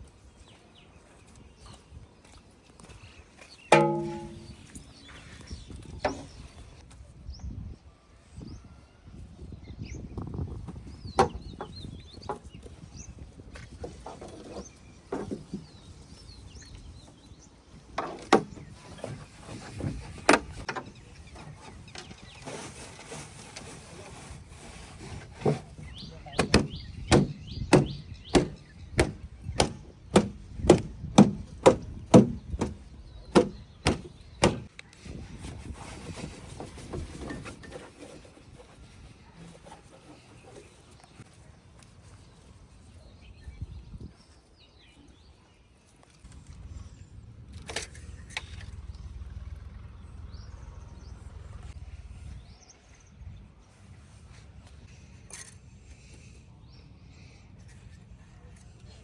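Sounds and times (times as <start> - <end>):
faint scattered knocks: 3.7 - 4.8.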